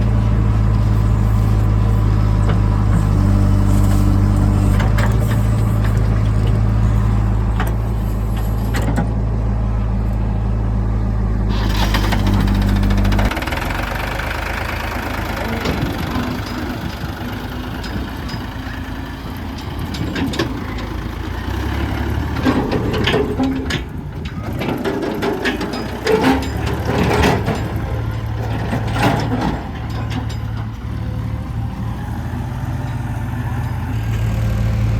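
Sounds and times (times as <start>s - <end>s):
diesel engine running: 0.0s - 34.9s
machinery knocks and clatter: 1.7s - 9.2s, 15.1s - 31.6s.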